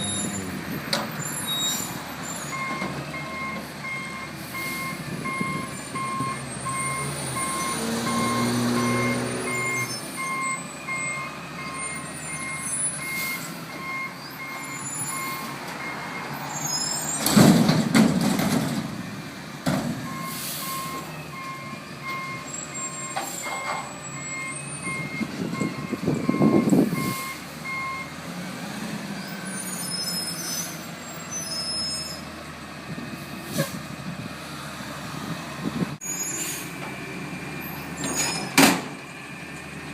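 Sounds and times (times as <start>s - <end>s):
truck reversing alarm beeping: 0.0s - 17.4s, 20.0s - 32.3s
truck engine: 0.0s - 39.9s.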